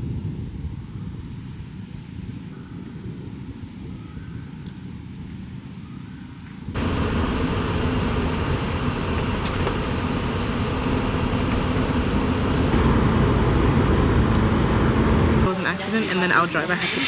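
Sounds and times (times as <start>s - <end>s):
low rumble: 6.8s - 15.5s
road noise: 6.8s - 17.0s
vehicle engine hum: 6.8s - 17.0s.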